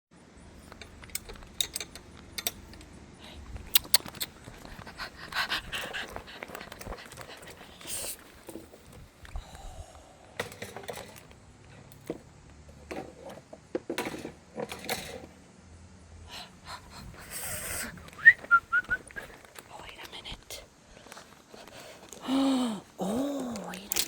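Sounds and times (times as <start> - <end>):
dog panting and snuffling: 3.4 - 9.2, 16.4 - 18.1
short clicks: 3.7 - 4.4.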